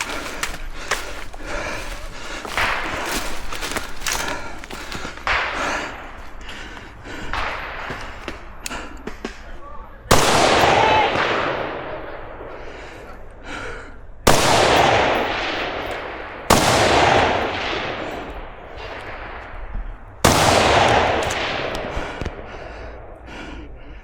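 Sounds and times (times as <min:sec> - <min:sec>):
gunshots with rolling echo: 0:00.0 - 0:24.0.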